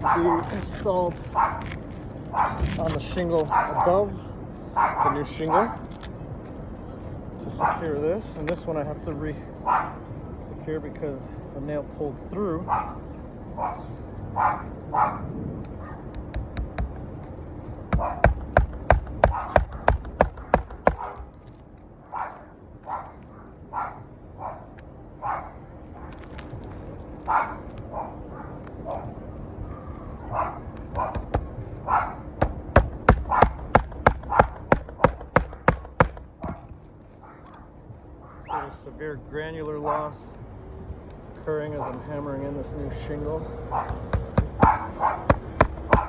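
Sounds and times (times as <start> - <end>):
dog barking: 0.0 - 0.5, 1.3 - 1.6, 2.3 - 2.7, 3.4 - 4.0, 4.8 - 5.8, 7.6 - 7.8, 9.6 - 10.0, 12.6 - 13.0, 13.6 - 16.1, 18.0 - 18.3, 19.2 - 21.3, 22.1 - 26.1, 27.3 - 31.2, 31.8 - 32.2, 33.2 - 33.6, 38.2 - 38.7, 43.7 - 46.0
hammer driving nails: 17.9 - 21.0, 32.4 - 36.6, 44.0 - 46.0.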